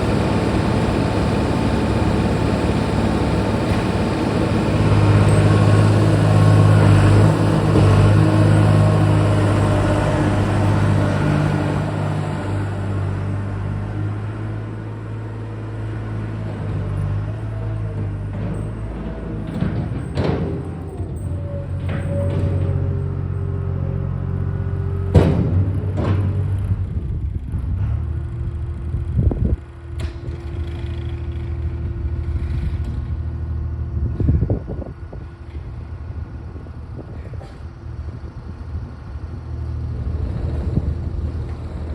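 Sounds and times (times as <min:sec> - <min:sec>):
skid steer engine humming: 0:00.0 - 0:41.9
clunk: 0:18.0 - 0:23.1, 0:25.1 - 0:26.7.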